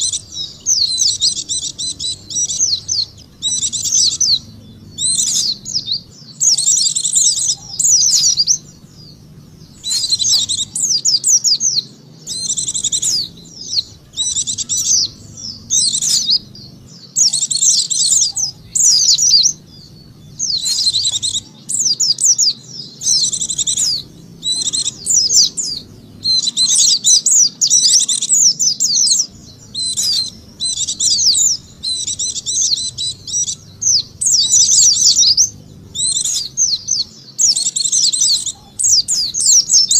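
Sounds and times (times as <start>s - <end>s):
bird twittering chirps: 0.0s - 39.9s
faint low hum: 0.0s - 39.9s.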